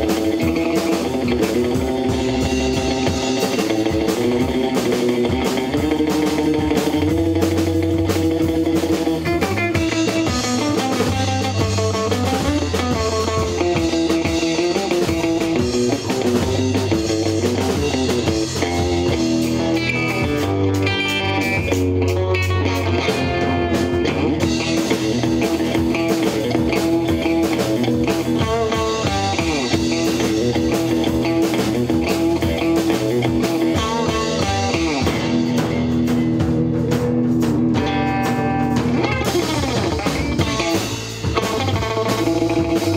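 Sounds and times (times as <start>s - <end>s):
electric guitar lines: 0.0s - 42.9s
rock band playing: 0.0s - 42.9s.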